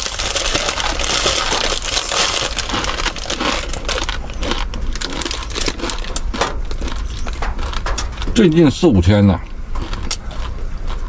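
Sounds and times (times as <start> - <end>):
dry noodles being eaten: 0.0 - 8.2
plastic packet crinkling: 0.0 - 8.6.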